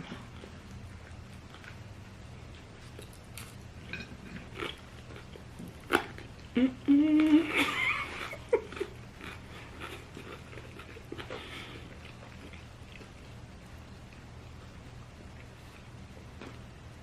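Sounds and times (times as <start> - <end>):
potato chips crunched and chewed: 8.0 - 13.2.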